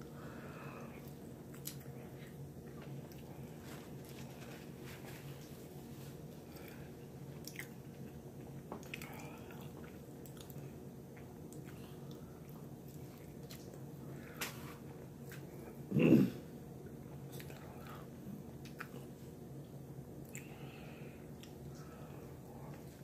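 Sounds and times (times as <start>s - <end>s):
faint steady hum: 0.0s - 23.0s
person chewing food: 0.9s - 5.6s, 7.4s - 13.9s, 20.2s - 20.6s.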